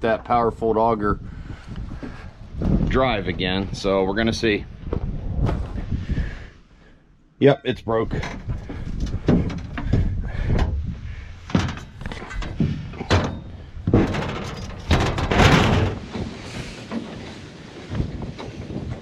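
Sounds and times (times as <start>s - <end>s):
knocks and clunks on metal: 8.2s - 17.2s
rustling scrape: 10.9s - 19.0s.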